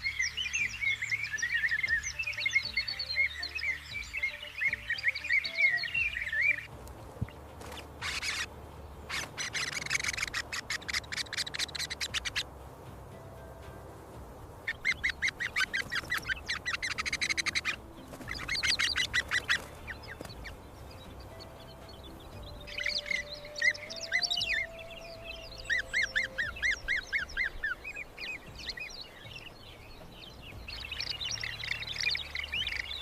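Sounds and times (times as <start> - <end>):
bird chattering call: 8.0 - 12.5, 14.6 - 29.4.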